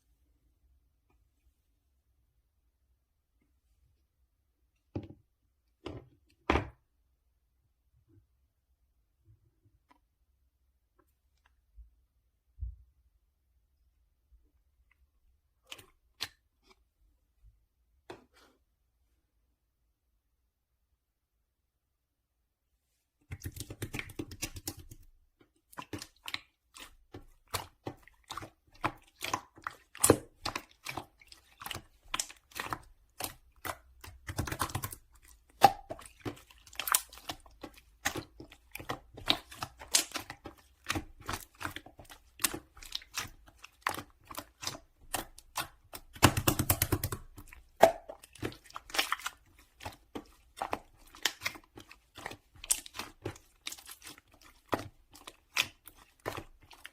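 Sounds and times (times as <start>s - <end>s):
slime squished by hand: 23.3s - 56.9s.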